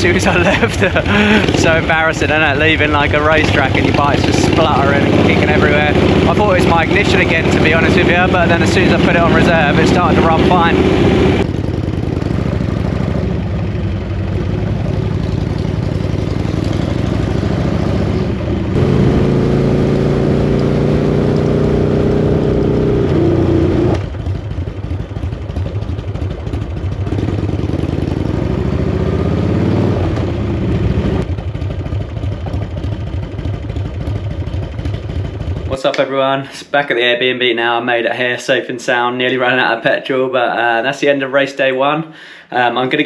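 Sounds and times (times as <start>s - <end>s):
motorcycle engine running: 0.0s - 35.9s.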